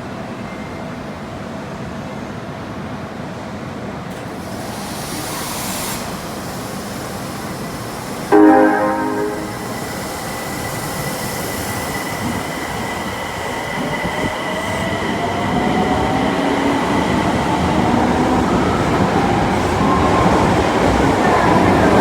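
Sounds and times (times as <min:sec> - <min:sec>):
train wheel and running noise: 0:00.0 - 0:08.3.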